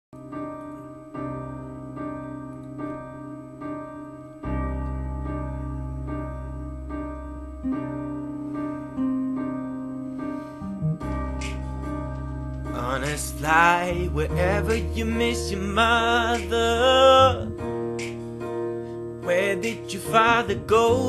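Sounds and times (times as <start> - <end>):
piano chords: 0.2 - 21.0
low bass: 4.5 - 8.3, 10.6 - 17.8.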